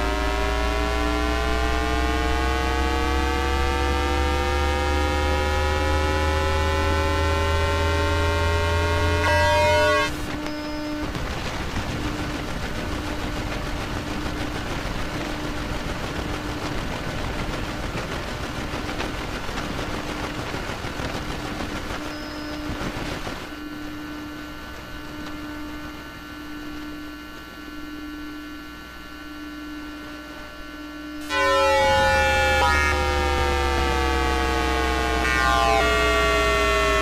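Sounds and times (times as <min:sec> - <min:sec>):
harsh hissing electrical buzz: 0:00.0 - 0:37.0
steady humming tones: 0:00.0 - 0:37.0.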